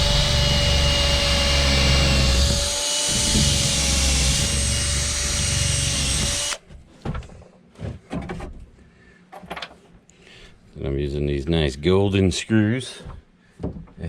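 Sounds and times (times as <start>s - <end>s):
power drill whining: 0.0s - 6.6s.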